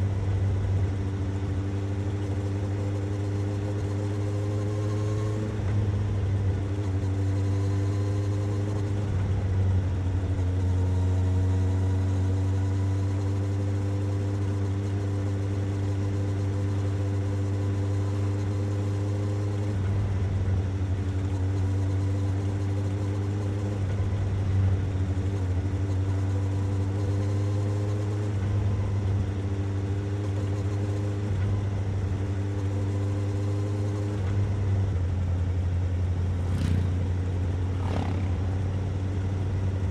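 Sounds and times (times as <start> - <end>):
motorcycle engine idling: 34.5 - 39.9.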